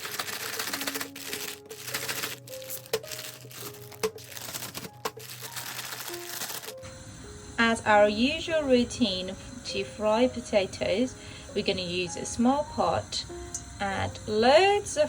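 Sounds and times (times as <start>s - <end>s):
plastic bag crinkling: 0.0s - 6.8s
soft background music: 0.0s - 15.0s.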